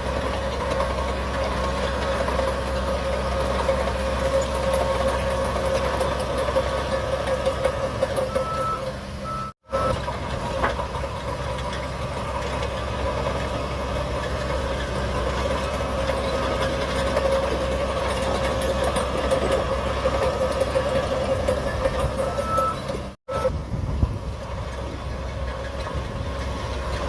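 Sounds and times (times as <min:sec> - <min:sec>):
bulldozer diesel engine: 0:00.0 - 0:27.0
high beep: 0:22.2 - 0:23.6.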